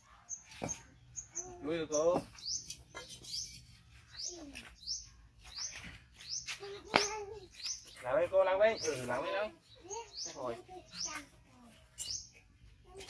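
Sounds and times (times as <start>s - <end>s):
bird chirping: 0.0s - 12.5s.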